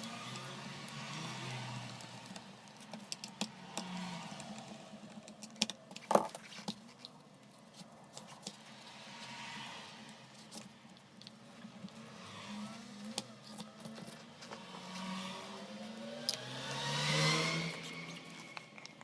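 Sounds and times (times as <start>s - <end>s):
clicks and taps of hard objects: 2.3s - 7.2s.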